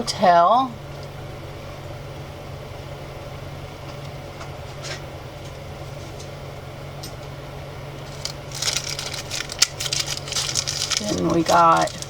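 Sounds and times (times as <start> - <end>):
steady low hum: 0.0 - 12.0
plastic packs rustling: 8.0 - 12.0.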